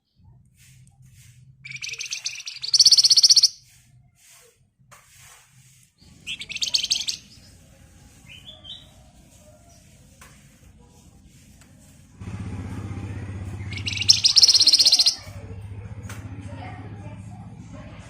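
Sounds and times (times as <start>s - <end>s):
bird rattling trill: 1.6s - 3.6s, 6.2s - 7.4s, 13.6s - 15.4s
soft rising bird notes: 13.5s - 15.2s.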